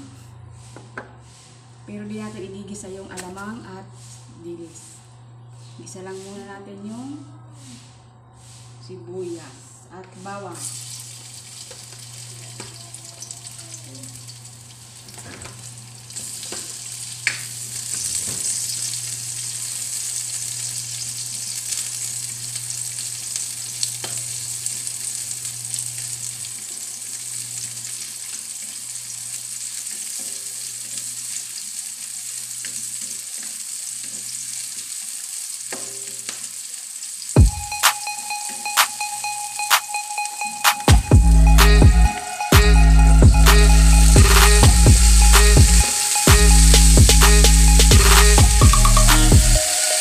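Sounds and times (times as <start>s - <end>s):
garlic and onion sizzling in oil: 10.5s - 40.5s, 43.7s - 50.0s
music: 37.4s - 50.0s.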